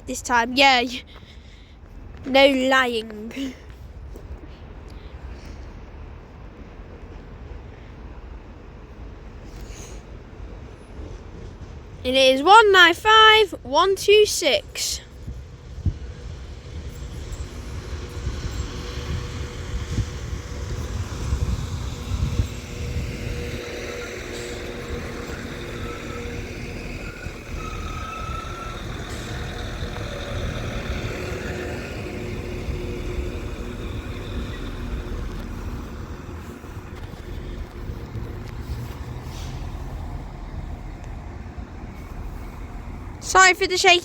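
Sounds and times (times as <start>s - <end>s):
train engine and wheel rumble: 0.0s - 44.0s
brief high squeal: 24.3s - 30.4s.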